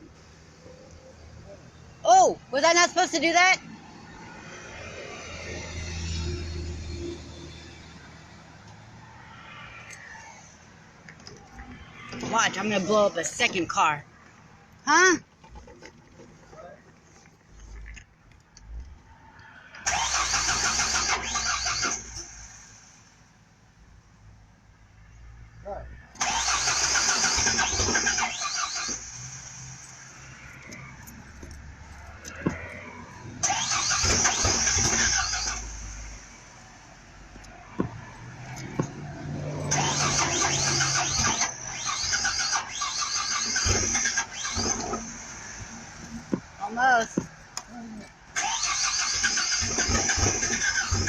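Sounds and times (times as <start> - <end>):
starter cranking engine: 19.8 - 22.6, 26.1 - 29.6, 33.4 - 36.0, 39.7 - 46.3, 48.3 - 51.0.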